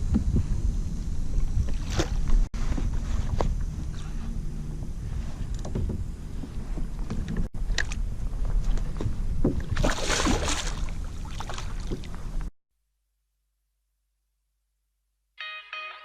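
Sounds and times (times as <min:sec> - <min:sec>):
wind rumbling on microphone: 0:00.0 - 0:12.5.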